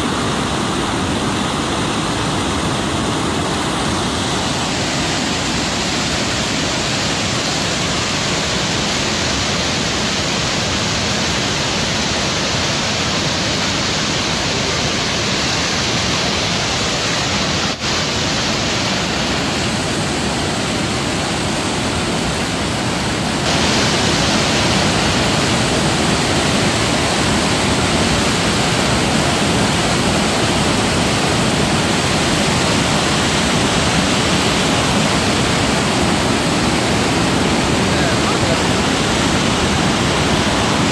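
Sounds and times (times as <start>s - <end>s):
water rushing over a weir: 0.0s - 40.9s.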